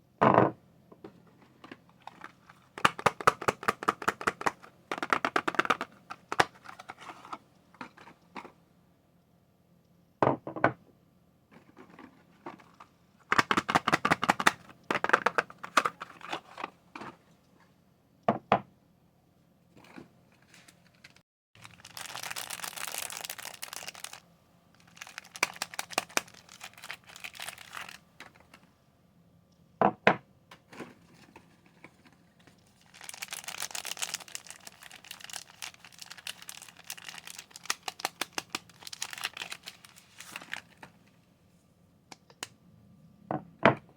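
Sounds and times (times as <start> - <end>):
packaging crinkling and tearing: 2.0 - 8.1, 20.5 - 28.6, 32.8 - 40.9.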